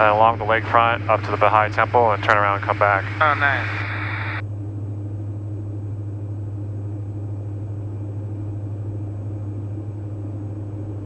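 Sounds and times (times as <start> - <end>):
aircraft engines droning in cabin: 0.0 - 11.0.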